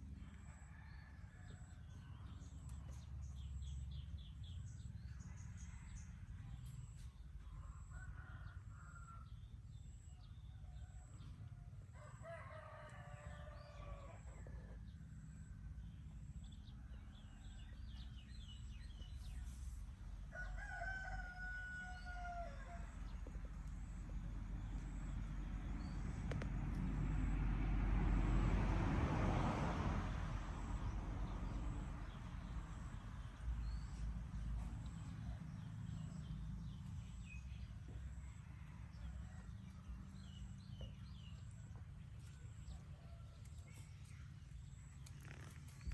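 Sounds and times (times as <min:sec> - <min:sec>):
rush of noise with low rumble: 0:22.8 - 0:37.7, 0:38.9 - 0:45.9.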